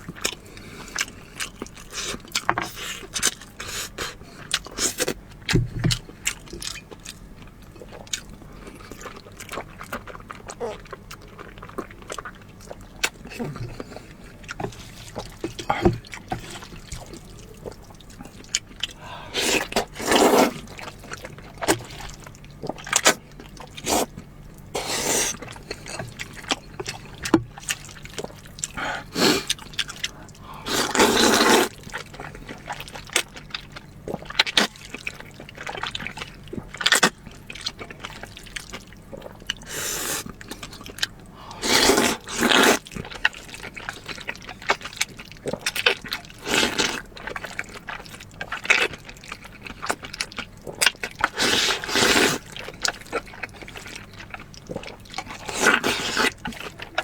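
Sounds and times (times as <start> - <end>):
wet chewing and mouth smacks: 0.0 - 57.0
slurping: 8.7 - 32.9, 39.5 - 40.9, 41.5 - 43.1, 50.7 - 57.0.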